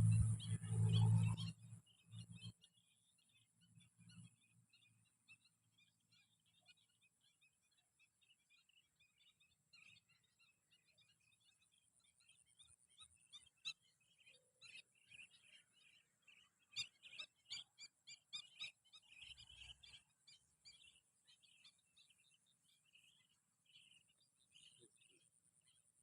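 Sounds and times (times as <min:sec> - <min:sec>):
flock of small birds chirping: 0:00.0 - 0:26.0.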